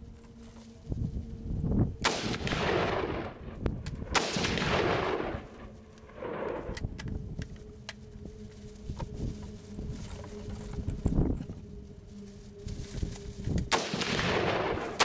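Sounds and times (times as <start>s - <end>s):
rifle shots echoing: 2.0s - 6.8s, 13.7s - 15.0s.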